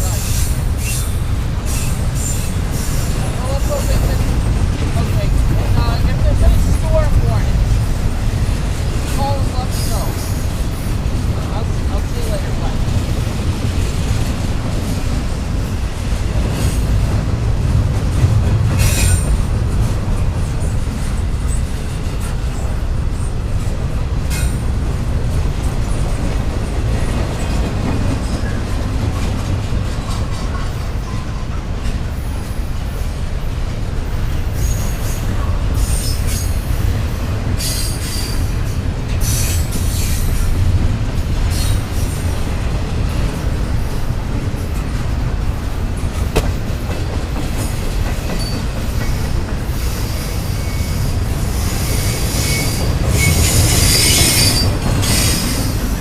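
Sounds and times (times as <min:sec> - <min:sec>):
train wheel squeals: 0:00.0 - 0:04.0, 0:34.2 - 0:36.9, 0:37.5 - 0:40.6, 0:41.5 - 0:42.2, 0:46.9 - 0:56.0
freight train rumbling on rails: 0:00.0 - 0:56.0.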